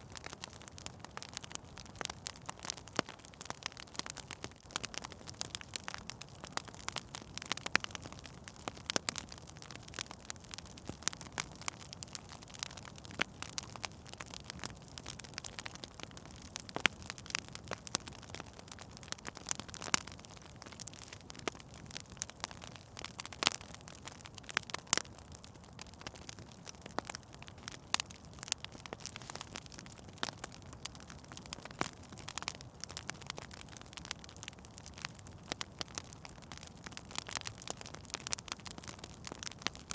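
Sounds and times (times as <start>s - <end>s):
fire crackling: 0.0s - 39.9s
low rush of flames: 24.0s - 37.9s.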